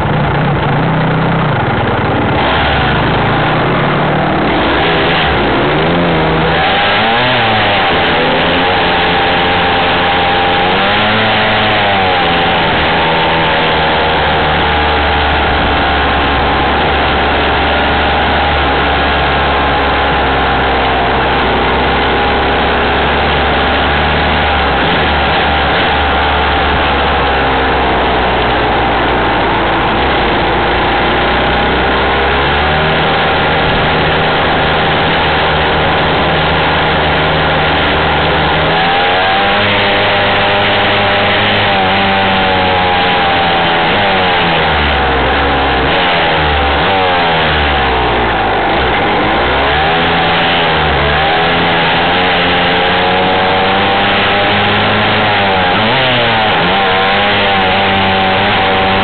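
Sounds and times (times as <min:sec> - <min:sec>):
dirt bike engine revving: 0:00.0 - 0:59.0
road and wind noise: 0:00.0 - 0:59.0.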